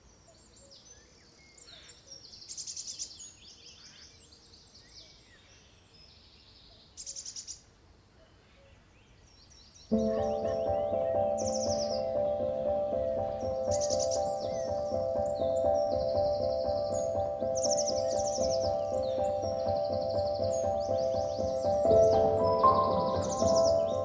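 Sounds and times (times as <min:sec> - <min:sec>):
songbirds singing: 0:00.0 - 0:24.0
loud rapid bird trills: 0:09.9 - 0:24.0
soft music with sustained notes: 0:09.9 - 0:24.0.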